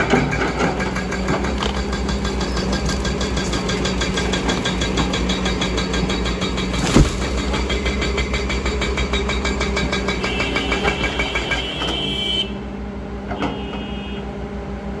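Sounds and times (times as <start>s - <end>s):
excavator diesel engine running: 0.0s - 13.2s.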